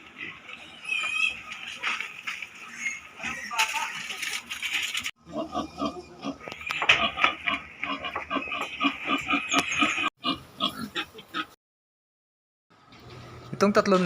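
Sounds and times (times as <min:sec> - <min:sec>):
pigs grunting: 0:00.0 - 0:04.2, 0:05.2 - 0:11.6.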